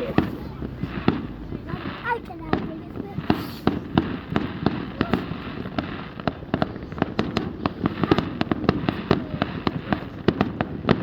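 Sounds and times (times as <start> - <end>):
fireworks cracking and popping: 0.0 - 11.0.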